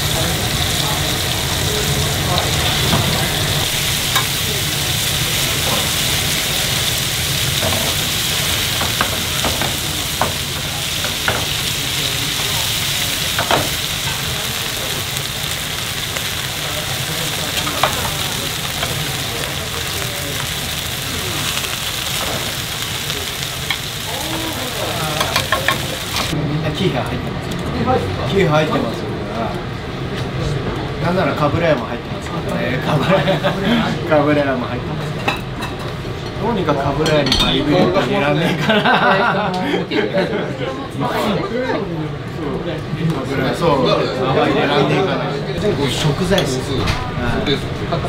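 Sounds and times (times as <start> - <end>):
fish sizzling in hot oil: 0.0 - 26.4.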